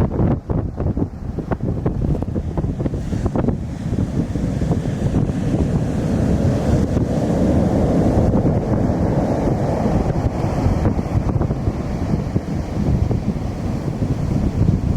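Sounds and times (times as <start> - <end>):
heavy surf breaking: 0.0 - 14.9
wind buffeting microphone: 0.0 - 14.9.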